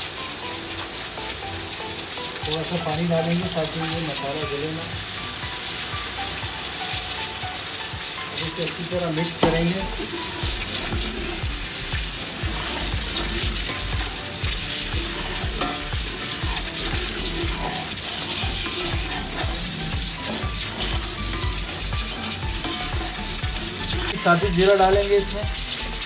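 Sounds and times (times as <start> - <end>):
spices sizzling in a pot: 0.0 - 26.0
spoon stirring and scraping pot: 9.3 - 24.4.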